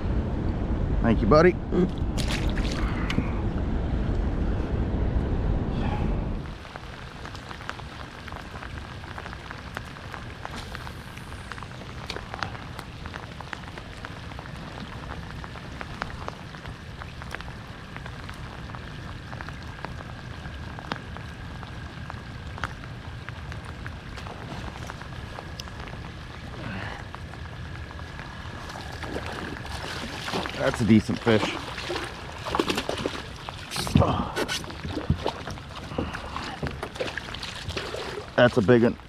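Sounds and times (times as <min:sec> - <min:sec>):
raindrops ticking close by: 0:06.4 - 0:39.0
steady rain on a river: 0:06.4 - 0:39.0.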